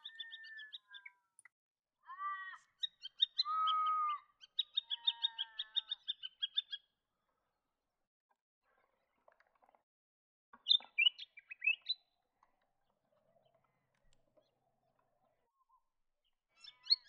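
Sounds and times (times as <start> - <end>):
bird piping and whistling: 2.8 - 6.8, 10.6 - 12.0, 16.6 - 17.0.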